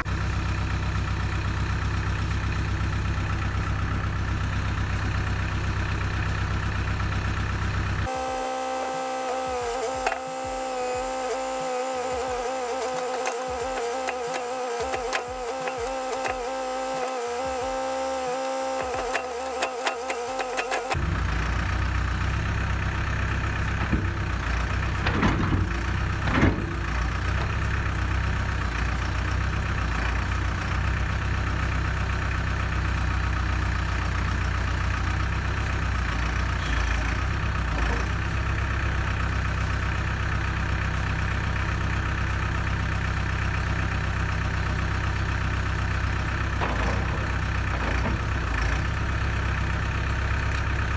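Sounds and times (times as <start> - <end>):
diesel engine idling: 0.0 - 50.9.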